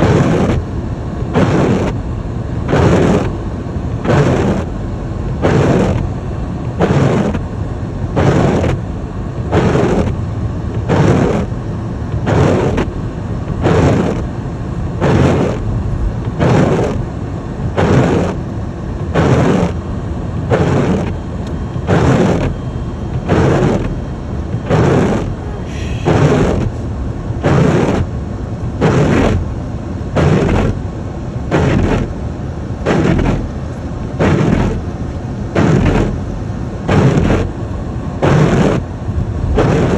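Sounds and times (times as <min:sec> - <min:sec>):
windshield wipers swishing: 0:00.0 - 0:00.6, 0:01.4 - 0:02.0, 0:02.7 - 0:03.4, 0:04.0 - 0:04.7, 0:05.4 - 0:07.5, 0:08.2 - 0:08.9, 0:09.5 - 0:14.3, 0:15.0 - 0:19.8, 0:20.5 - 0:29.6, 0:30.2 - 0:30.9, 0:31.5 - 0:32.2, 0:32.8 - 0:36.3, 0:36.9 - 0:37.6, 0:38.2 - 0:38.9, 0:39.5 - 0:39.9
low rumble: 0:00.0 - 0:39.9.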